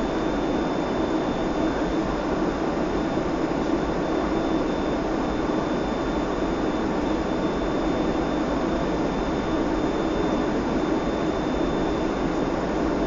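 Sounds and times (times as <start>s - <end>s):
airliner engine and airflow rush: 0.0s - 13.0s.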